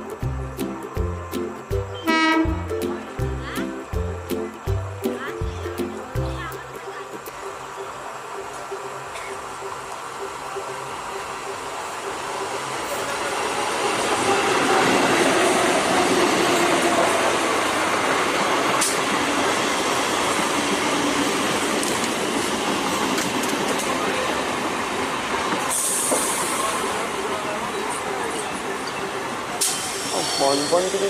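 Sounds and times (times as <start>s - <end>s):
train running on track: 0.0s - 31.0s
short burst of hiss: 25.7s - 26.8s, 29.6s - 31.0s.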